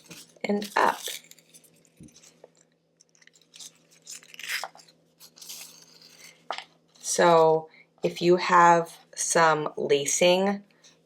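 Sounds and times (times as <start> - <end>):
leaf crinkling and rustling: 0.0 - 2.4, 3.2 - 6.4.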